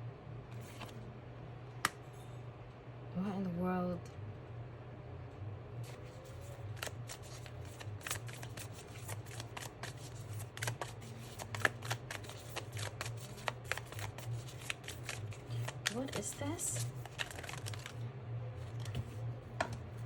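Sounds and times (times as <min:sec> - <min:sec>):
steady low hum: 0:00.0 - 0:20.0
cards being shuffled: 0:00.6 - 0:01.0, 0:05.8 - 0:18.0, 0:18.6 - 0:19.8.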